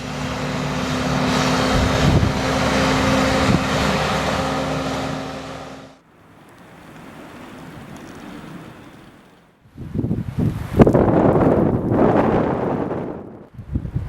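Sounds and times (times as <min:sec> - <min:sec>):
vehicle engine hum: 0:00.0 - 0:09.6
rushing noise: 0:00.0 - 0:13.3.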